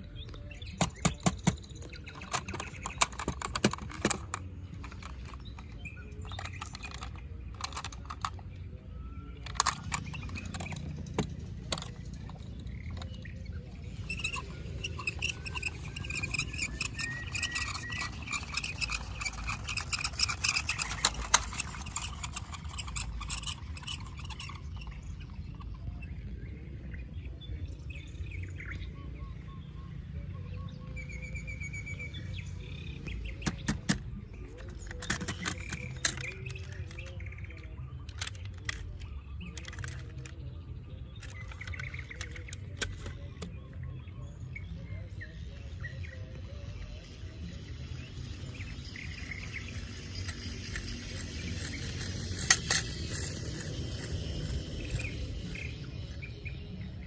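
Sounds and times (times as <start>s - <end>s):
sharp clicks and knocks: 0.0s - 8.7s, 9.4s - 25.8s, 32.9s - 43.9s, 48.6s - 55.7s
small birds chirping and trilling: 0.0s - 57.0s.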